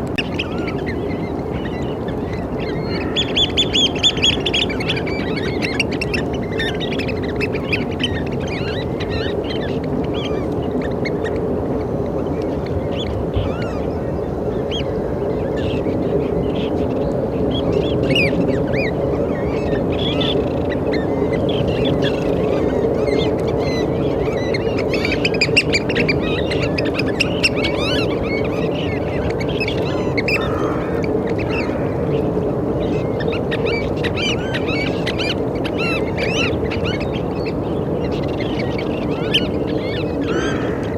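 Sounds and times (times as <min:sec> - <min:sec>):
low background rumble: 0:00.0 - 0:40.9
oystercatchers calling: 0:17.6 - 0:40.9.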